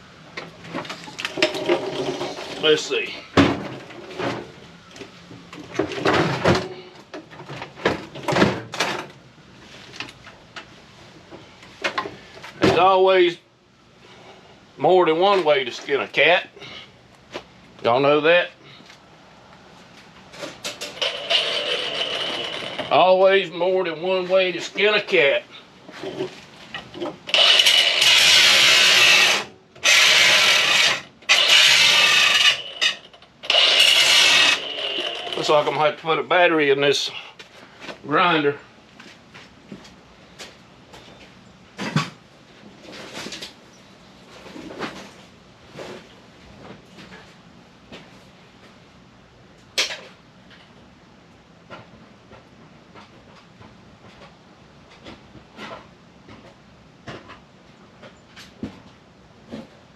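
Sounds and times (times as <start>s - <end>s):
hand tools and metal parts rattling: 0.4s - 9.2s, 20.2s - 23.5s, 24.2s - 35.8s
angle grinder grinding: 20.8s - 23.0s, 27.3s - 35.7s.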